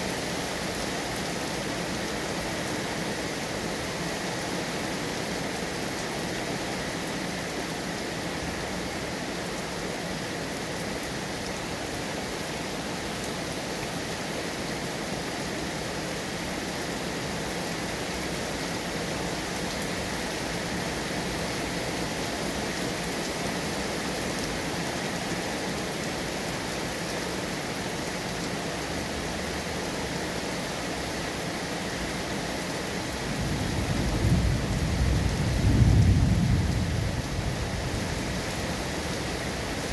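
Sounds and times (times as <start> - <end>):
steady rain hissing: 0.0 - 39.9
thunder rumbling: 33.3 - 38.4.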